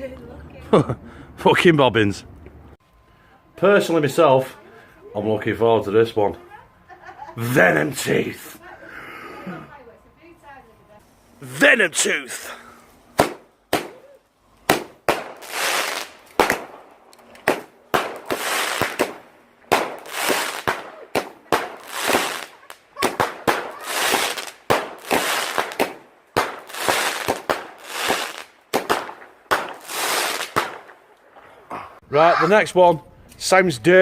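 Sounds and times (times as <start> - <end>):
firework shots bang and hiss: 13.2 - 16.8, 17.4 - 31.0.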